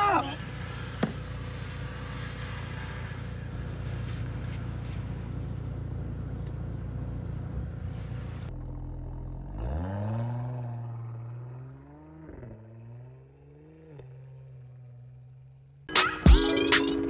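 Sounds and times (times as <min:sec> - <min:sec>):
car driving hum and hiss: 0:00.0 - 0:08.6
engine revving up: 0:07.6 - 0:14.7.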